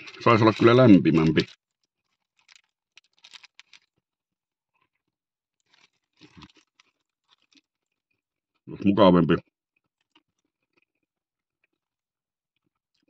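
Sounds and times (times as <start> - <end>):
paper wrapper crinkling: 0.0 - 4.0, 5.6 - 7.9
faint chewing: 0.0 - 8.7, 9.7 - 13.0.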